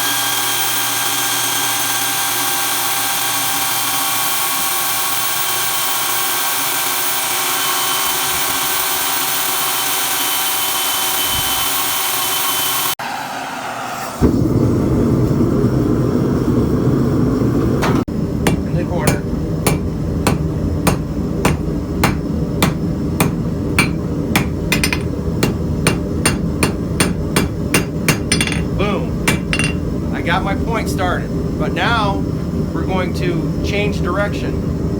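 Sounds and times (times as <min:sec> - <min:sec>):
hammer striking steel on anvil: 0:18.4 - 0:29.9.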